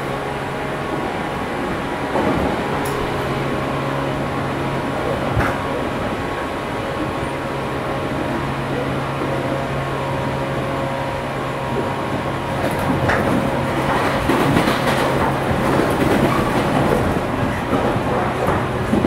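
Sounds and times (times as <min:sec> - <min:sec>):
train wheels clattering over joints: 0:12.2 - 0:19.0.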